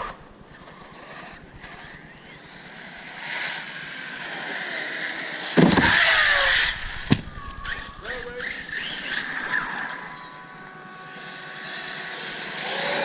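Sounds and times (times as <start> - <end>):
electric rc car motor whine: 0.0 - 13.0
tyre noise: 5.6 - 8.5.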